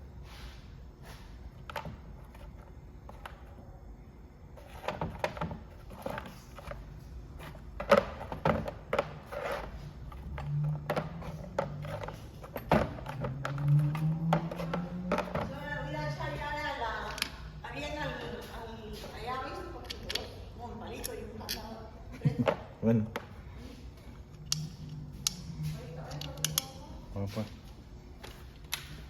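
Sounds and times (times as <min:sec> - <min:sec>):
tools knocking and clinking: 0:10.2 - 0:15.6, 0:19.8 - 0:20.4, 0:24.3 - 0:26.9.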